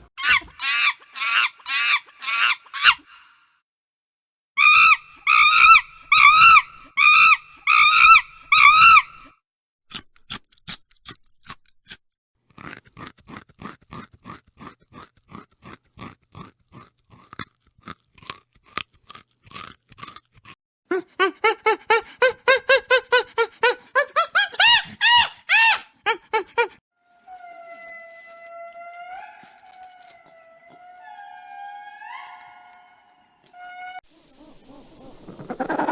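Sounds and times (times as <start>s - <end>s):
animal calls: 0.2s - 3.3s, 4.6s - 9.3s.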